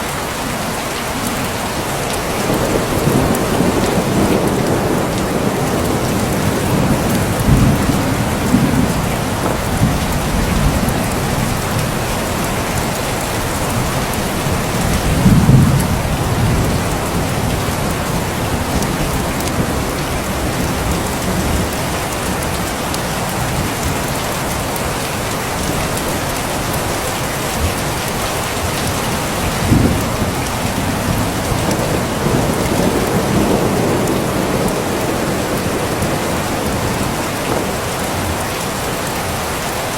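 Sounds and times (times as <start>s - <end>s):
heavy rain: 0.0s - 39.9s
low thunder rumbling: 2.2s - 24.5s, 25.6s - 38.8s.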